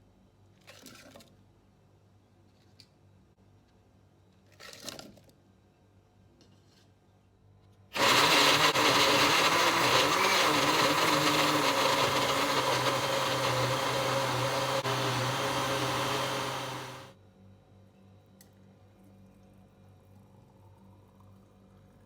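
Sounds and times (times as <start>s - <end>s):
electric blender running: 8.0s - 17.1s.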